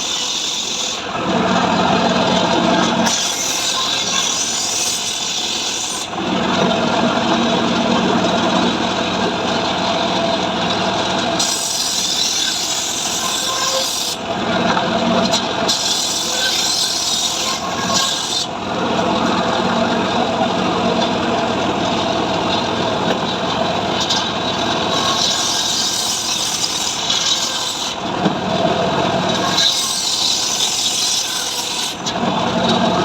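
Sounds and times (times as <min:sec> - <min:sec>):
chainsaw cutting wood: 0:11.4 - 0:18.5, 0:24.1 - 0:28.5, 0:29.2 - 0:32.2.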